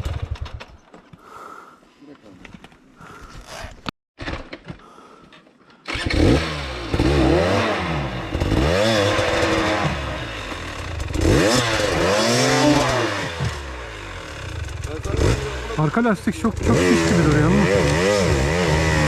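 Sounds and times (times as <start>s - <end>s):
dirt bike engine revving: 5.9s - 19.0s.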